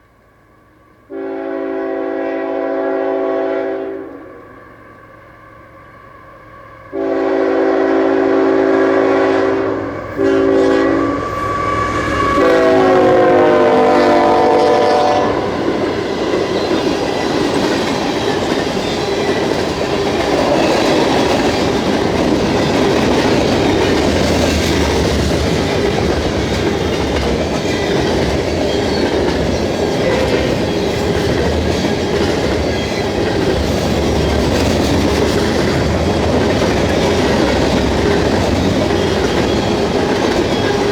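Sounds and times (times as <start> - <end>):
train horn blasts: 0.2 - 16.4, 30.0 - 30.6
train wheels clattering: 14.2 - 40.9.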